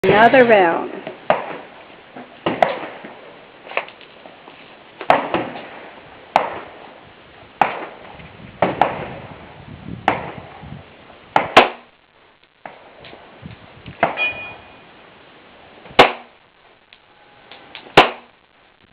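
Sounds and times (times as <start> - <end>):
pistol shots: 2.4 - 3.2, 7.6 - 8.0, 11.4 - 11.9, 16.0 - 16.4, 18.0 - 18.4.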